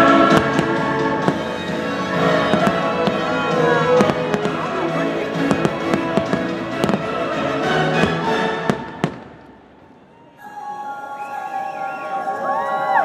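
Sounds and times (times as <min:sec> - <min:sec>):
fireworks bursting: 0:00.0 - 0:10.0
music soundtrack: 0:00.0 - 0:13.0.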